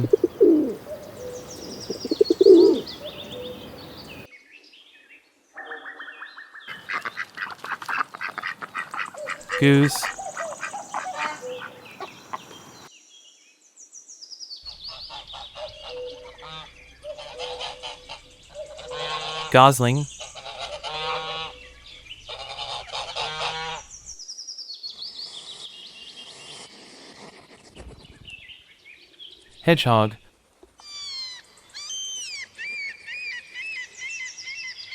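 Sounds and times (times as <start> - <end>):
geese honking: 8.2 - 12.7, 20.4 - 21.6, 22.4 - 23.8.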